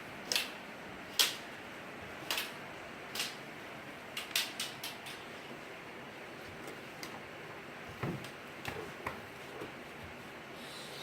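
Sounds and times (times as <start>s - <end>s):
faint hiss: 9.4s - 11.0s.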